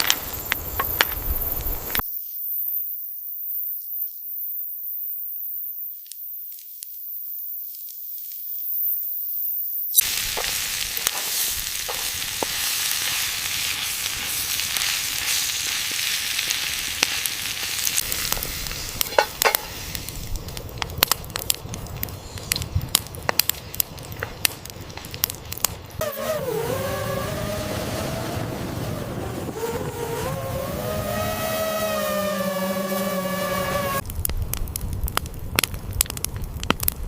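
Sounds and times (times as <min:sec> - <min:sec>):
sharp crackles and pops: 0:00.0 - 0:02.6, 0:09.9 - 0:37.0
food sizzling in a pan: 0:10.0 - 0:20.4
wavering pitched whine: 0:26.0 - 0:34.0.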